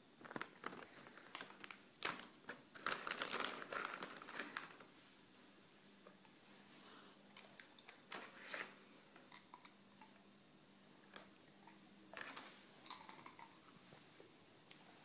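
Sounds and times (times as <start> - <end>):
pet chewing crunchy treat: 11.6 - 13.7.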